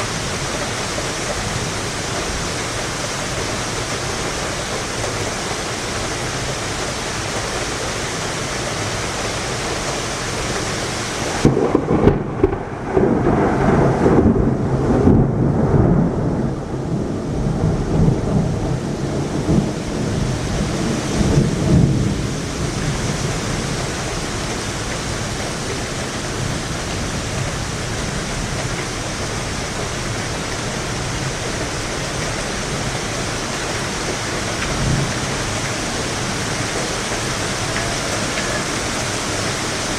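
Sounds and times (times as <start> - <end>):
heavy rain: 0.0 - 39.9
thunder cracking and rumbling: 11.2 - 39.9.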